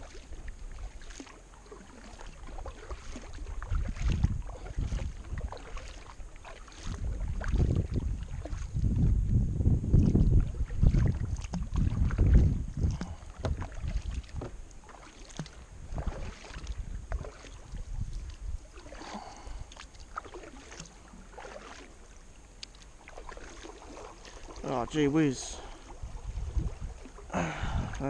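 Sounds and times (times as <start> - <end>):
paddle splashing in water: 0.0 - 9.3, 9.9 - 28.0
paddle knocking on hull: 2.0 - 9.1, 10.0 - 17.6
wind rumble on microphone: 2.4 - 14.7, 15.6 - 19.7, 24.8 - 28.0.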